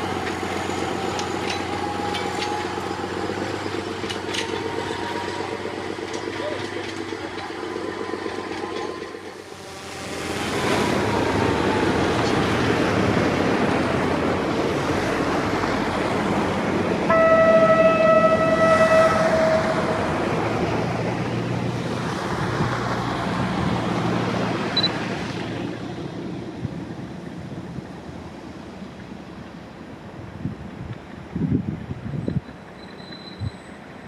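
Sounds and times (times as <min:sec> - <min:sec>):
diesel train running past: 0:00.0 - 0:34.0
train horn blast: 0:09.3 - 0:13.3, 0:17.0 - 0:21.5.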